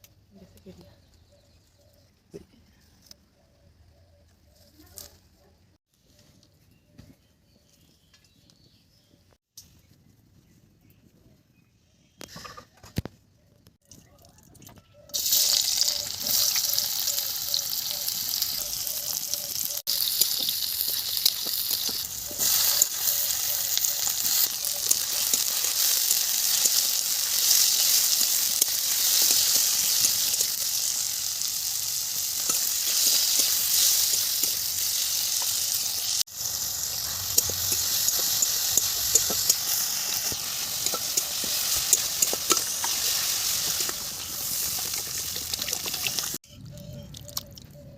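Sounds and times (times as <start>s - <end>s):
fish sizzling in hot oil: 15.2s - 46.4s.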